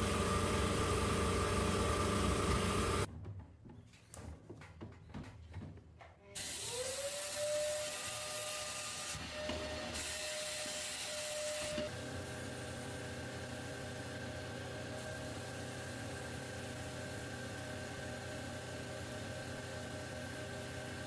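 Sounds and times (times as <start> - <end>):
power tool motor whining: 6.4 - 12.0.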